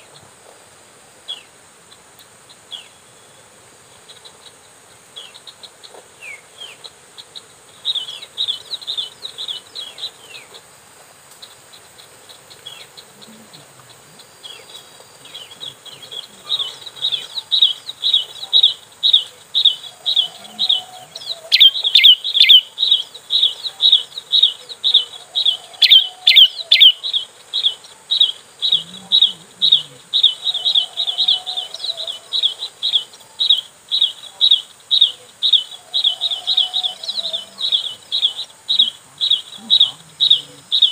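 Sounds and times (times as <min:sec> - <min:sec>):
insects humming: 0:00.0 - 0:40.9
bird high chirping call: 0:13.8 - 0:40.9.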